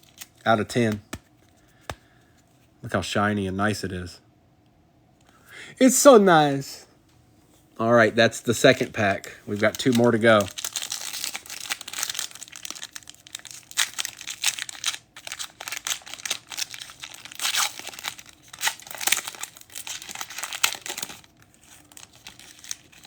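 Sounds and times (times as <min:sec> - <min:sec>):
wrapper tearing and crinkling: 0:00.0 - 0:00.4, 0:09.5 - 0:23.0.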